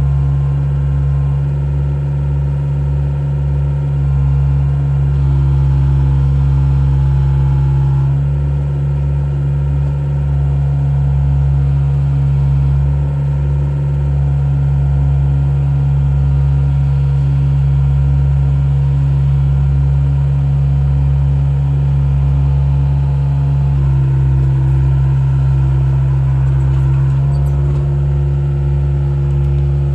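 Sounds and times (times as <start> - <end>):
excavator diesel engine running: 22.3 - 29.9.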